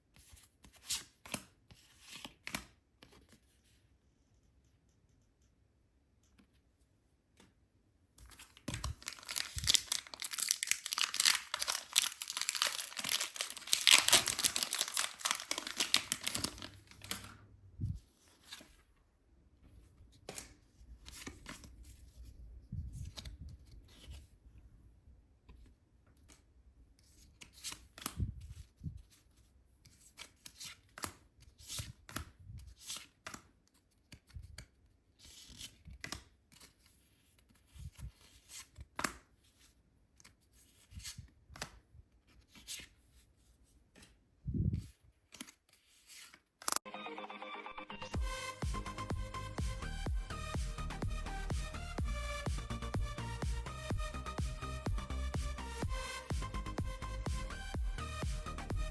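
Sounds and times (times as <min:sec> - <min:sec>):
packaging tearing and crinkling: 0:08.7 - 0:17.3.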